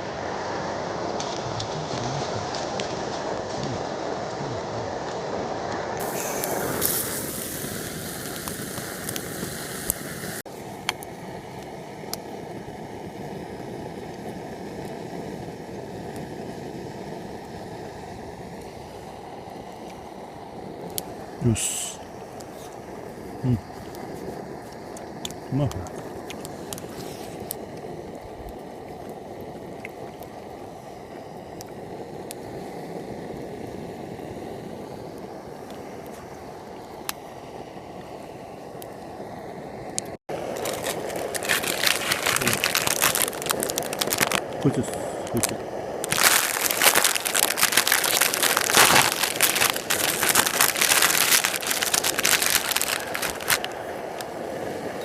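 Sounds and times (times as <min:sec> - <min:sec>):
camp stove burner rushing: 0:00.0 - 0:55.0
plastic packaging crinkling: 0:40.3 - 0:54.3.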